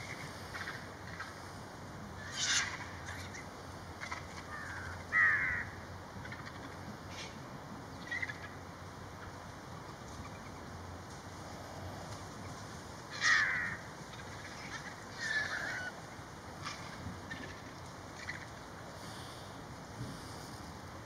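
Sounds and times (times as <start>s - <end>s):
harsh rasping bird calls: 0.0s - 1.5s, 2.2s - 9.4s, 11.5s - 19.5s.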